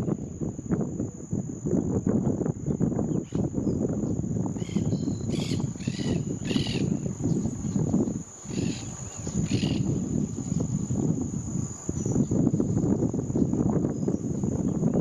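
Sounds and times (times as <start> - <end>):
high-pitched insect trill: 0.0 - 15.0.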